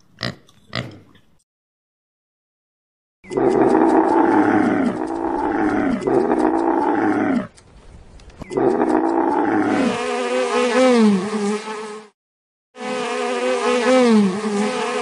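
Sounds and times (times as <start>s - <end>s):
camel groaning: 3.3s - 7.5s, 8.5s - 10.0s.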